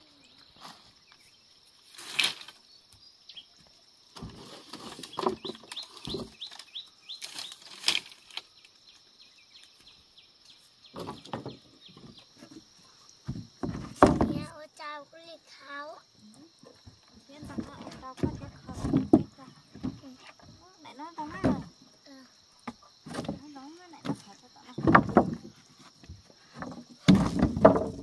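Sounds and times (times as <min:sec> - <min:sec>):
birds chirping: 0:02.6 - 0:03.9, 0:04.9 - 0:13.1.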